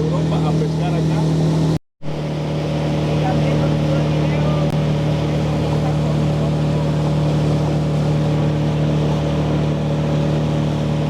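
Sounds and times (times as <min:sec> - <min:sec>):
motorboat engine humming: 0:00.0 - 0:11.0
water rushing: 0:00.0 - 0:11.0
wind: 0:00.0 - 0:11.0.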